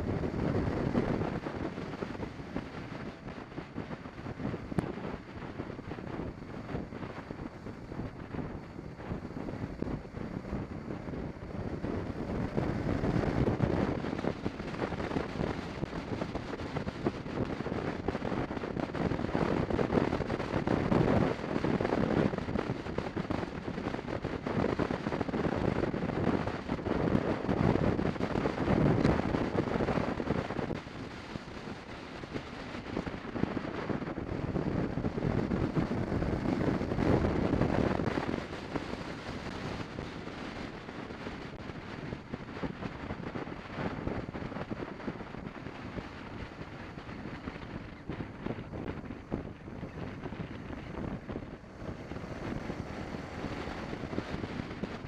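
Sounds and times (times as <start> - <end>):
wind buffeting microphone: 0.0 - 55.0
motorcycle engine running: 26.4 - 55.0.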